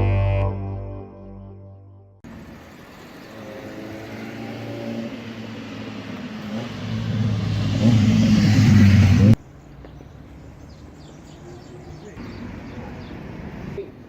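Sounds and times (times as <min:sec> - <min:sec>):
car engine accelerating: 0:03.0 - 0:09.4.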